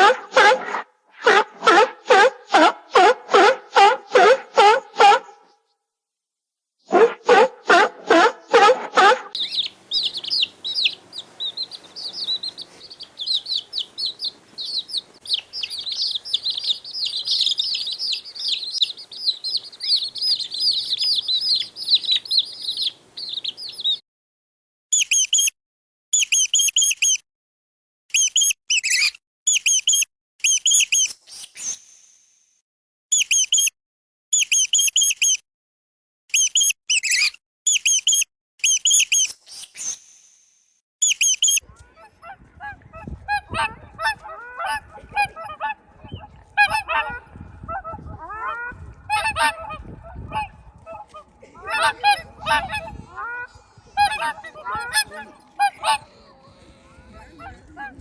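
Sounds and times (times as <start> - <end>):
bird chirping: 9.4 - 24.0
geese honking: 9.4 - 24.0, 41.9 - 58.0.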